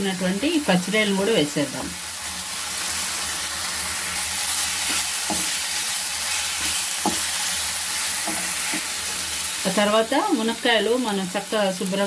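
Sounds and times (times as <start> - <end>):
prawns sizzling in a pan: 0.0 - 12.0
wooden spatula scraping a pan: 3.7 - 9.7.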